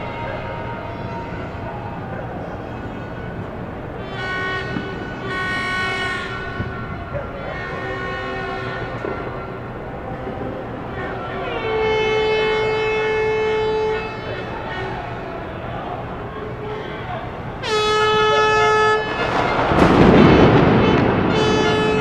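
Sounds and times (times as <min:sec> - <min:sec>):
horns blowing long blasts: 0:00.0 - 0:22.0
high-pitched horn: 0:10.3 - 0:15.5, 0:17.6 - 0:22.0.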